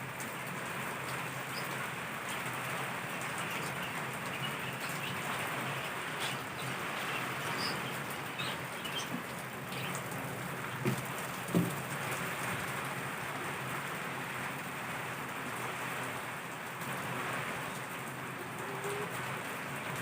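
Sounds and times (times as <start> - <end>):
heavy rain pouring: 0.0 - 20.0
dull knocks: 10.8 - 11.9.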